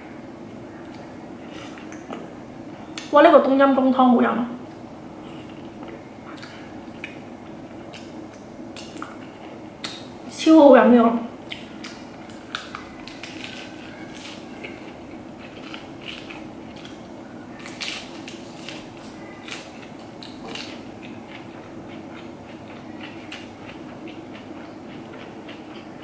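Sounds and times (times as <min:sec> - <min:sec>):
lettuce crunching and chewing: 0:04.7 - 0:10.2, 0:11.4 - 0:26.0.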